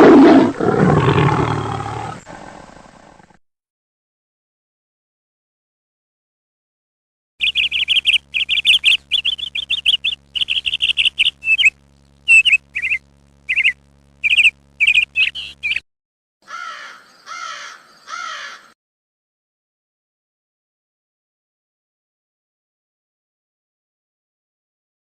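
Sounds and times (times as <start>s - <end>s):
bird trilling chirps: 7.4s - 15.8s
harsh squawking calls: 7.4s - 15.8s, 16.5s - 18.7s.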